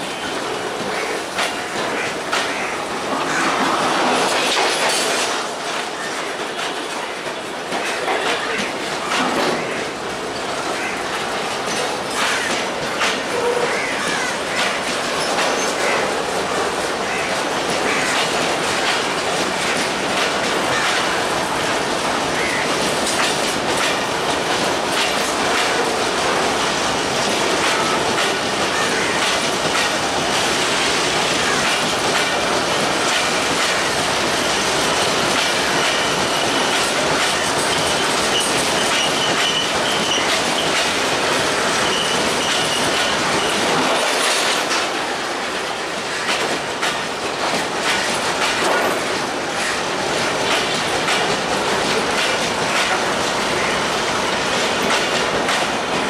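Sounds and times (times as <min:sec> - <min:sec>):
train wheels clattering over rail joints: 0:00.0 - 0:56.0
high wheel squeal: 0:37.7 - 0:40.7, 0:41.8 - 0:43.7.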